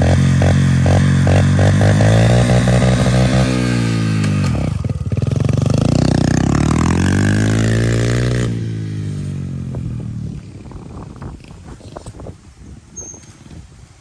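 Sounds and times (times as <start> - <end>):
pit bike engine revving: 0.0 - 10.8.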